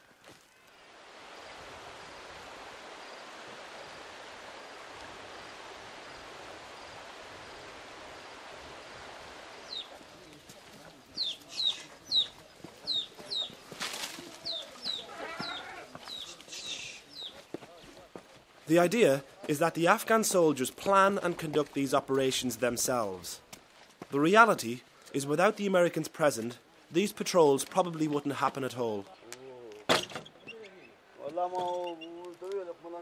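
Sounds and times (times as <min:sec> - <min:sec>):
small bird chirping: 0:09.6 - 0:10.0, 0:11.1 - 0:13.6, 0:14.4 - 0:17.4.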